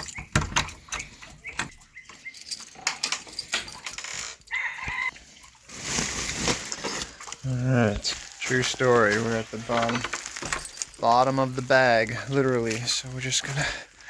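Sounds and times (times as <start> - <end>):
feed bag rustling and clicking: 5.6 - 14.0.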